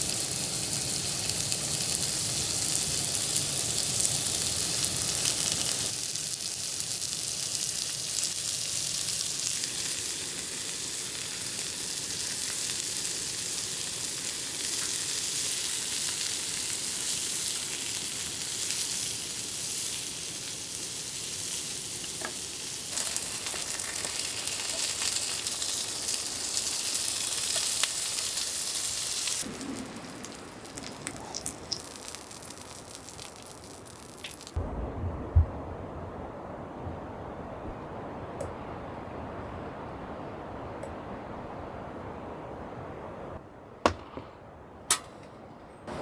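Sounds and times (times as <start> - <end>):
food sizzling in a pan: 0.0 - 34.6.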